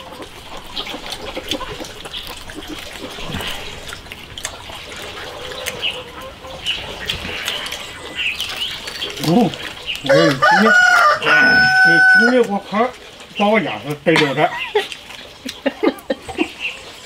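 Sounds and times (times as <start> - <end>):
chickens clucking: 0.0 - 17.0
people chewing and gnawing: 0.0 - 17.0
wet mouth clicks and smacks: 0.6 - 6.0, 14.8 - 15.7.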